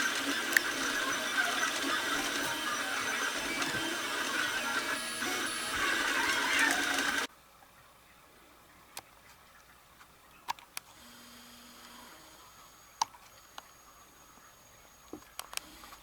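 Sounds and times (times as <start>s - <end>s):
stepper motors whining: 0.0s - 7.3s.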